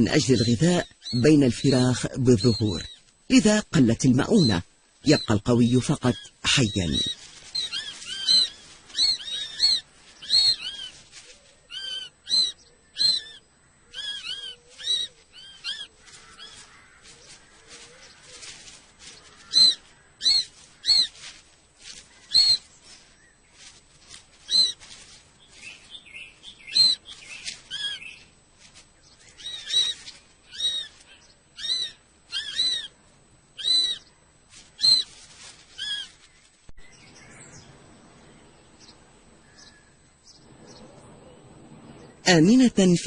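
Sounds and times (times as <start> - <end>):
kestrels calling: 0.0 - 37.8, 38.4 - 41.0.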